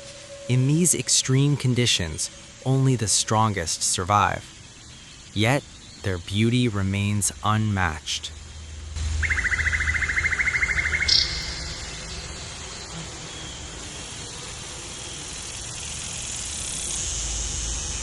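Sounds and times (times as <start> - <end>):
steady hiss: 0.0 - 18.0
low hum: 8.2 - 18.0.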